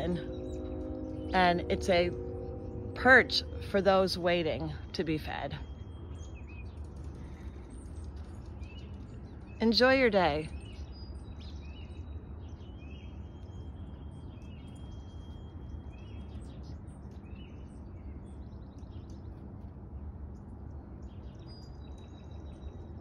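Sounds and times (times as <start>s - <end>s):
high whistled bird notes: 0.0s - 7.4s
low background rumble: 0.0s - 23.0s
songbirds chirping: 0.0s - 23.0s.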